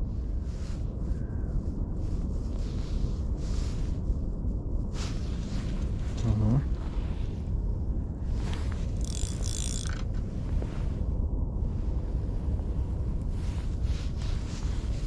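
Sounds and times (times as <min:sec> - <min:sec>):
wind rumble on microphone: 0:00.0 - 0:15.0
higher rattle: 0:08.9 - 0:10.2
spinning reel whirring: 0:09.0 - 0:10.0.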